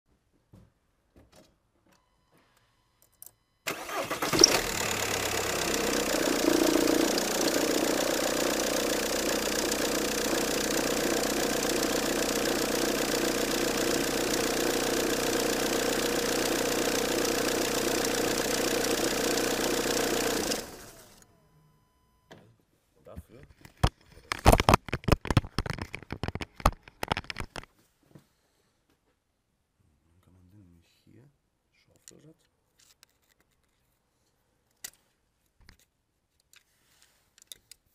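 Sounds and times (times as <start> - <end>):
rattling belt tensioner: 3.7 - 21.0
diesel engine cranking and idling: 3.7 - 21.2.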